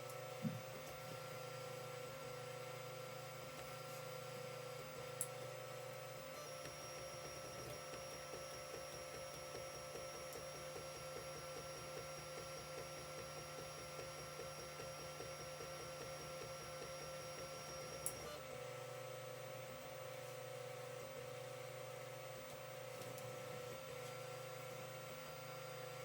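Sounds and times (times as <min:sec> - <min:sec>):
stepper motors whining: 0:06.4 - 0:18.4.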